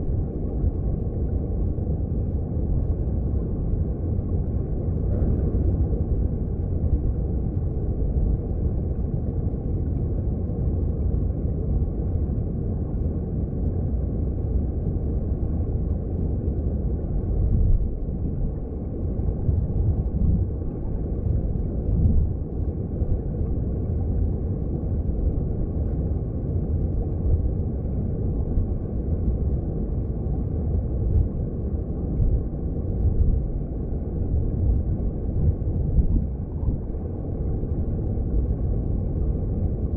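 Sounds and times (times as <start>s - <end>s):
underwater stream current rumbling: 4.4s - 8.4s.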